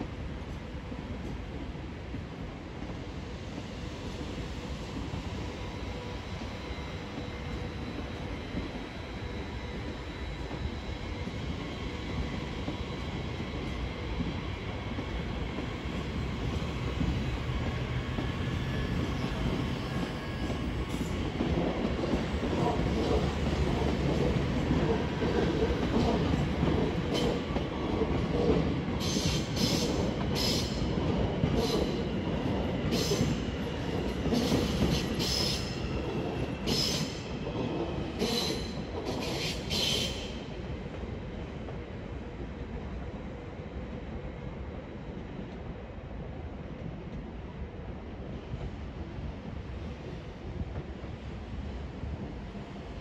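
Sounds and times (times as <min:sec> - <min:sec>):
train rumbling over tracks: 0:00.0 - 0:53.0
train wheels squealing and clacking: 0:03.1 - 0:40.5.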